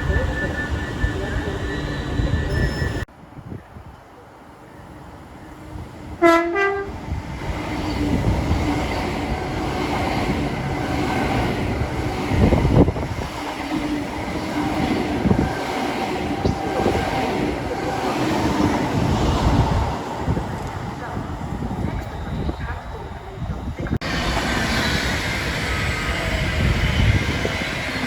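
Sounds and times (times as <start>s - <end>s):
train rumble and rail noise: 0.0s - 28.0s
train horn two-note blast: 6.2s - 7.0s.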